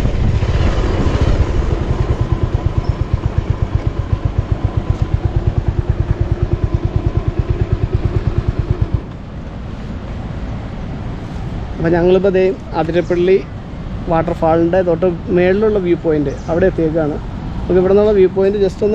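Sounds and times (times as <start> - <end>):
motorcycle engine: 0.0 - 10.6.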